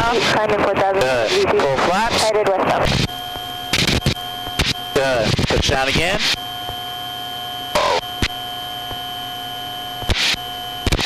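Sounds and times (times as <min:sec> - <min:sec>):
electronic warning tone: 0:01.0 - 0:11.0.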